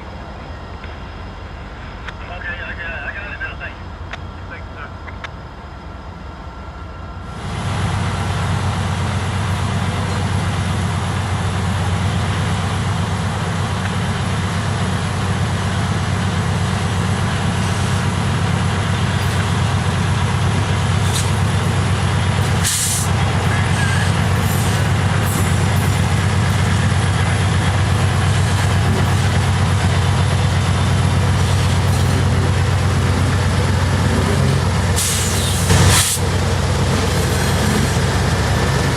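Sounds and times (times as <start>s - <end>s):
freight train rumbling past: 0.0s - 38.9s.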